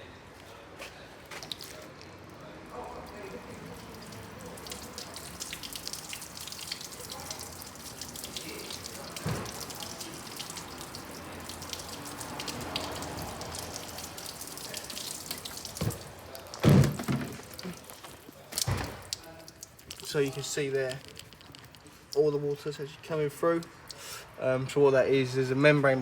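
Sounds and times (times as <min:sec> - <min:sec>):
water trickling and dripping: 0:01.3 - 0:22.8
loud thumps: 0:15.8 - 0:17.6.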